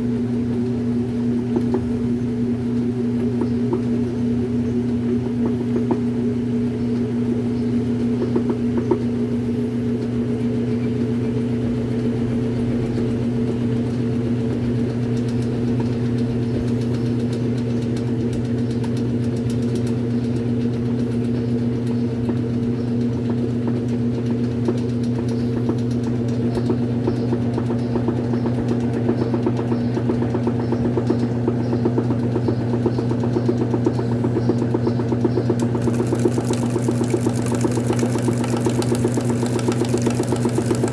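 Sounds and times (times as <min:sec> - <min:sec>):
washing machine motor humming: 0:35.3 - 0:40.9.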